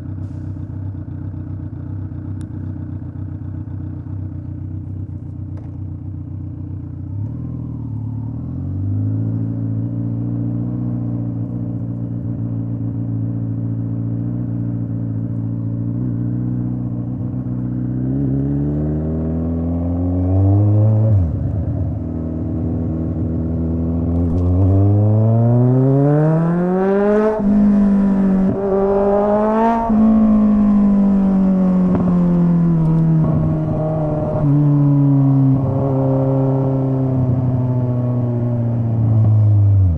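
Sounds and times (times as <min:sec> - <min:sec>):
motorcycle engine revving: 0:12.2 - 0:39.9.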